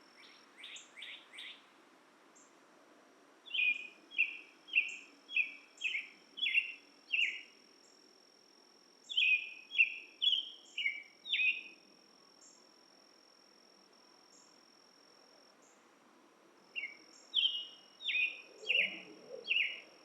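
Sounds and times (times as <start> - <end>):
songbird singing: 0.0 - 1.7, 3.4 - 8.0, 9.0 - 12.7, 14.2 - 14.9, 16.7 - 20.0
high insect drone: 3.6 - 20.0.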